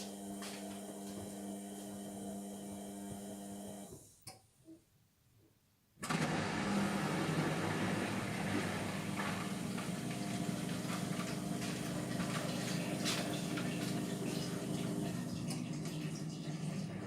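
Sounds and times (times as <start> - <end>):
washing machine motor hum: 0.0 - 3.9, 6.0 - 17.0
water sloshing in drum: 7.2 - 16.6.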